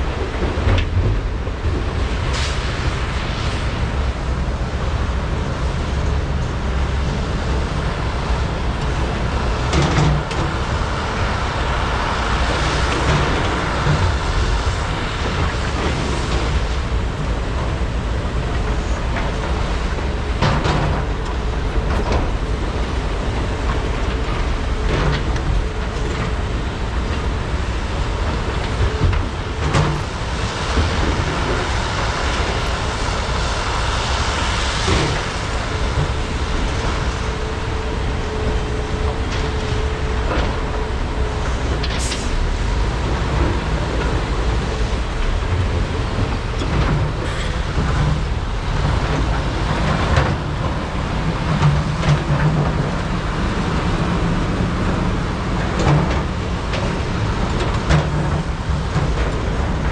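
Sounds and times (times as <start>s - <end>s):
excavator diesel engines droning: 0.0s - 59.9s.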